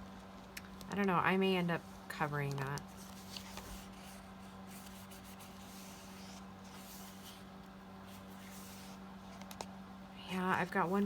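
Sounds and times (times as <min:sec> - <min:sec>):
low electrical hum: 0:00.0 - 0:11.0
paper and card rustling: 0:02.1 - 0:09.6.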